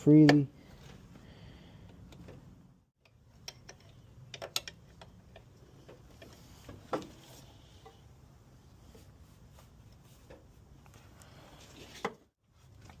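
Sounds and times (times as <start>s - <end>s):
metallic clicks of hand tools: 3.0s - 6.4s.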